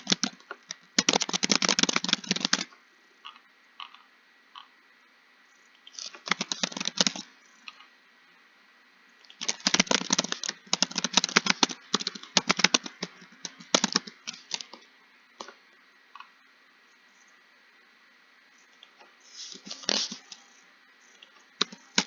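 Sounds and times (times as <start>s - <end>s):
typing on a keyboard: 0.0s - 2.7s, 6.0s - 7.3s, 9.3s - 14.8s, 21.6s - 22.0s.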